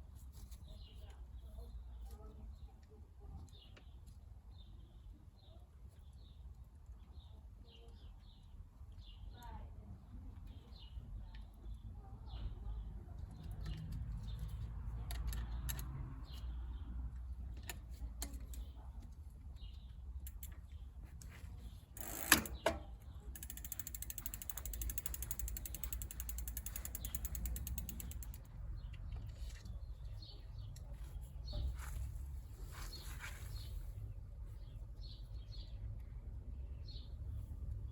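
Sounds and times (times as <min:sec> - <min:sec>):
small clicks: 0:20.2 - 0:21.4, 0:22.0 - 0:29.8
bicycle freewheel ticking: 0:22.0 - 0:28.5.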